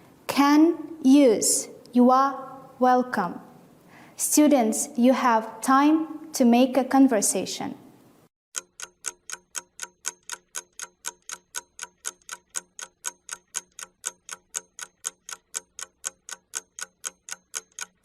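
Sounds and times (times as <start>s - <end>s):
clock ticking: 8.5s - 18.0s.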